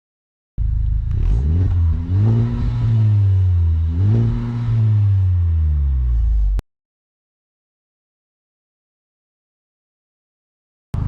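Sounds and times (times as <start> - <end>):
car engine revving: 0.6 - 6.6.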